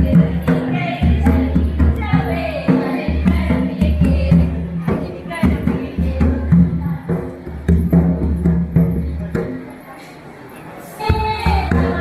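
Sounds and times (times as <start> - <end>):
voices singing: 0.0 - 7.4
drums beaten: 0.0 - 9.7, 11.0 - 12.0.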